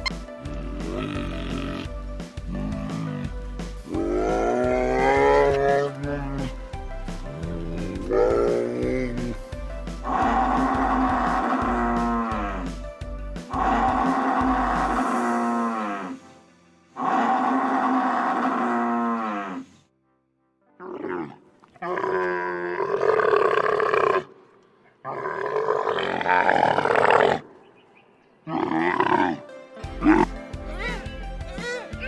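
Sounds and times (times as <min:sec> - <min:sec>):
rough roaring animal calls: 0:02.5 - 0:06.5.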